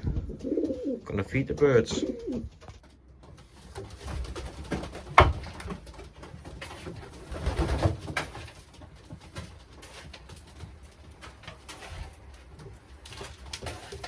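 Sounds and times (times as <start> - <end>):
low bumping and rustling: 0.0 - 1.0
pigeons cooing: 0.0 - 2.6.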